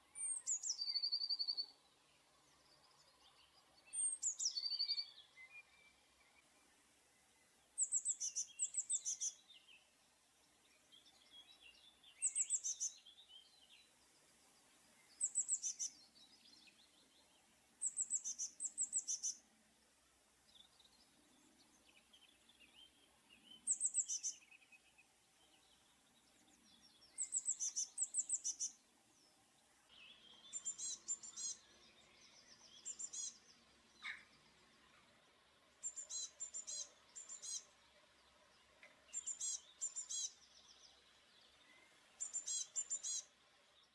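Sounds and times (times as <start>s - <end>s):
bird trill: 12.2s - 13.2s, 27.1s - 28.8s, 30.2s - 31.7s, 32.7s - 34.3s, 35.8s - 37.7s, 39.1s - 40.4s, 41.8s - 43.3s.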